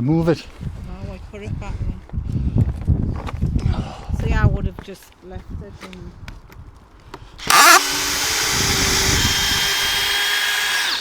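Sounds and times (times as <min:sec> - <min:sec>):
power drill whine: 0:07.4 - 0:11.0.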